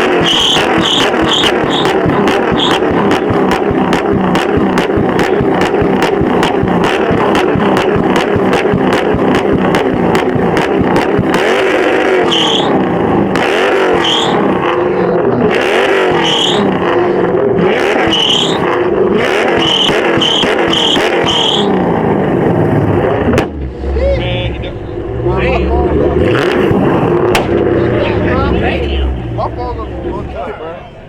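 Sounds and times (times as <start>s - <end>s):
tyre squeals: 0.0s - 3.4s, 11.5s - 12.9s, 13.5s - 14.6s, 15.8s - 16.8s, 18.0s - 18.7s, 19.5s - 21.9s
car engine revving hard: 0.0s - 30.7s.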